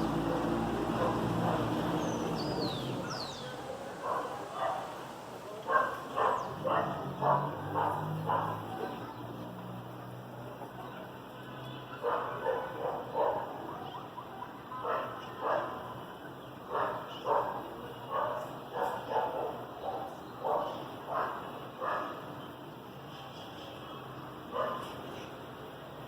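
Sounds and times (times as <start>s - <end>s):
dog barking: 0.2s - 2.0s, 3.0s - 5.0s, 5.7s - 9.2s, 11.9s - 14.2s, 14.8s - 15.9s, 16.7s - 22.2s, 24.5s - 25.0s.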